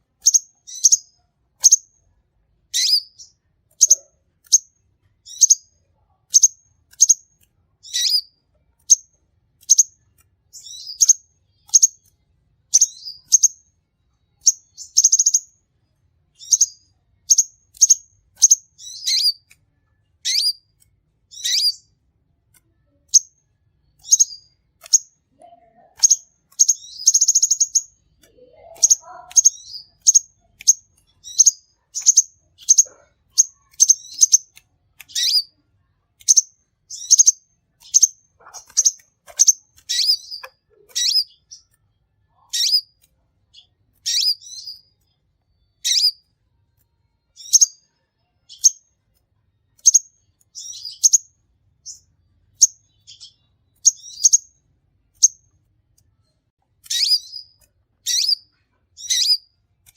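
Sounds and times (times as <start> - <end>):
sunbird singing high chirps: 0.2 - 1.8, 2.7 - 5.7, 7.8 - 8.3, 10.6 - 12.1, 12.7 - 13.6, 14.4 - 15.5, 16.4 - 19.5, 20.2 - 20.6, 21.3 - 21.9, 24.0 - 25.1, 26.0 - 35.5, 36.3 - 41.7, 42.4 - 43.0, 43.6 - 44.9, 45.6 - 46.2, 49.8 - 54.6, 56.8 - 59.5.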